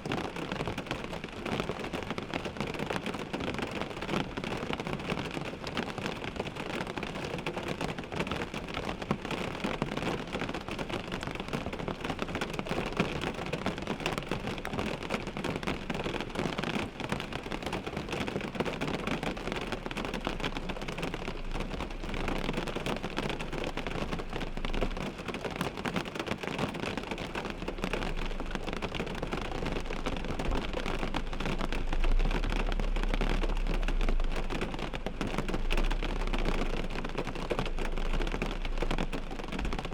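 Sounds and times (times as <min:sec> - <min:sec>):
rain pattering on a windshield: 0:00.0 - 0:39.9
low rumble: 0:27.2 - 0:39.9.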